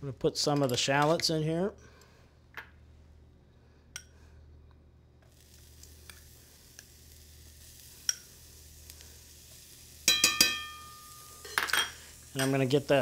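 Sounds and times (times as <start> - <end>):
shallots sizzling in butter: 5.2 - 13.0.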